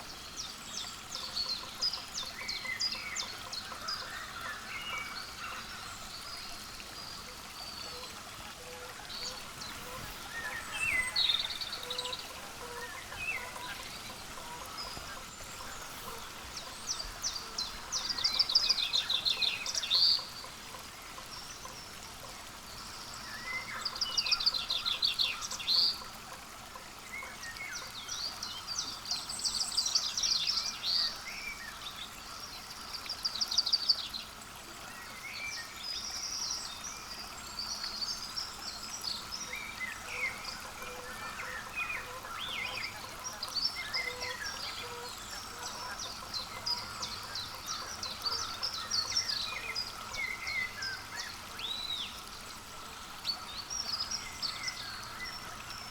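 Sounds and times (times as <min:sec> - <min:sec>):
faint steady hiss: 0:00.0 - 0:55.9
songbirds trilling: 0:09.1 - 0:20.5.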